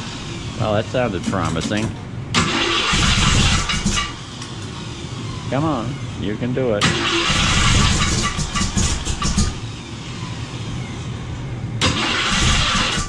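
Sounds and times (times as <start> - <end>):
starter motor cranking engine: 1.0 - 4.7, 6.8 - 9.8, 11.8 - 13.0.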